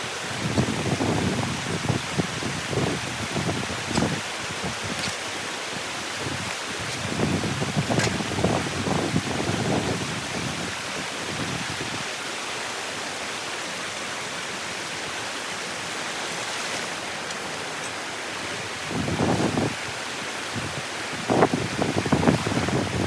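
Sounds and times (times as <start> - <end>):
wind buffeting microphone: 0.3 - 12.0, 18.4 - 23.0.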